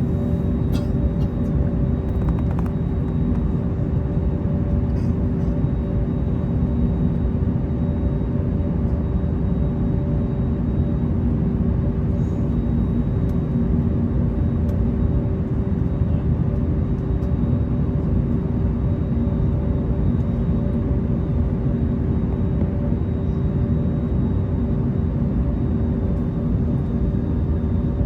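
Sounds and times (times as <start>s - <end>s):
jet engines idling: 0.0s - 5.5s
constant tonal hum: 0.0s - 28.0s.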